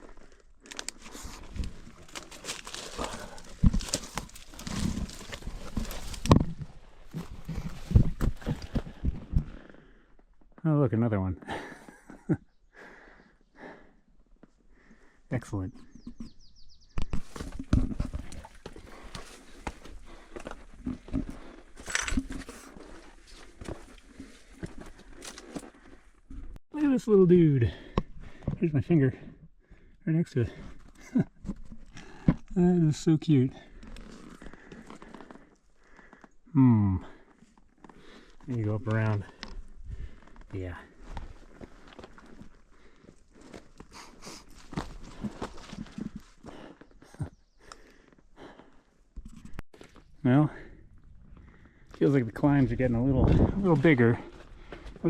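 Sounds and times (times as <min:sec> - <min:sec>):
heavy breathing: 0:01.0 - 0:06.2, 0:12.7 - 0:15.3, 0:18.8 - 0:23.5, 0:33.5 - 0:38.5, 0:39.2 - 0:49.0, 0:49.8 - 0:52.0, 0:53.4 - 0:55.0
hands and boots scuffing rock: 0:01.0 - 0:09.1.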